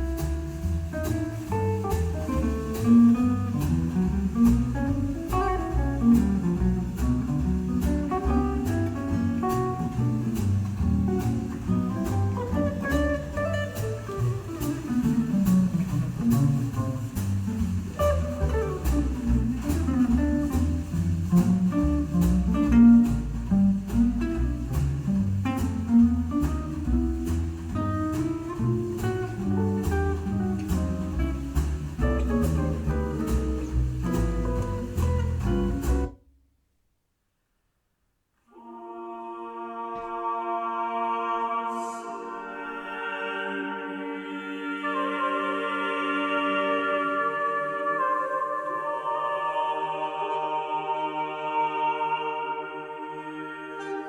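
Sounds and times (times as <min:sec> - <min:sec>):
light ticking beat: 0:00.0 - 0:36.2
plucked guitar: 0:00.0 - 0:36.2
bass line: 0:00.0 - 0:36.4.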